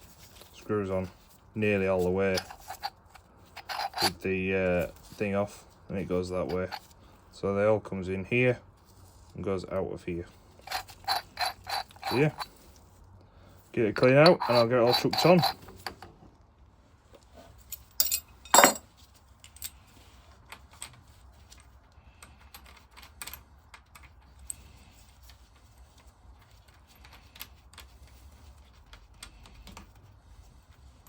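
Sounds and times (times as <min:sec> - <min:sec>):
metal parts clinking and knocking: 0:02.2 - 0:04.2, 0:06.4 - 0:06.9, 0:10.6 - 0:12.7, 0:14.0 - 0:16.1, 0:17.6 - 0:19.8, 0:20.4 - 0:30.0.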